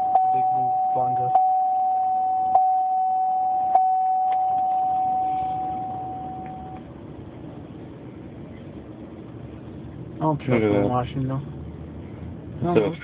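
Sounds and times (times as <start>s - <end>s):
high electronic tone: 0.0s - 6.8s
low steady hum: 0.0s - 13.0s.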